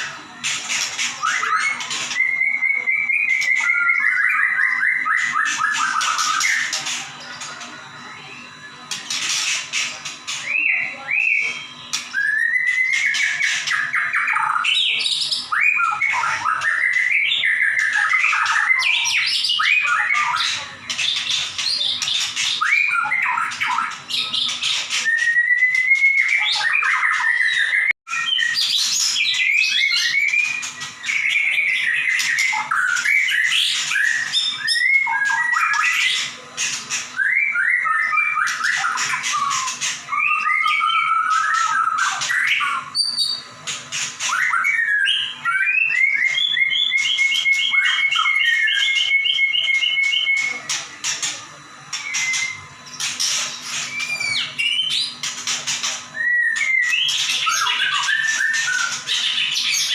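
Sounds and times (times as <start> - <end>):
songbird whistling loud song: 0.0 - 50.9, 51.9 - 59.9.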